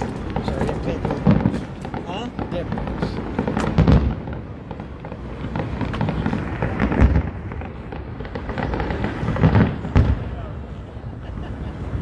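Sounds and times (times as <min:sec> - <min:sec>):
fireworks crackling pops: 0:00.0 - 0:10.3
fireworks heavy boom: 0:00.0 - 0:12.0.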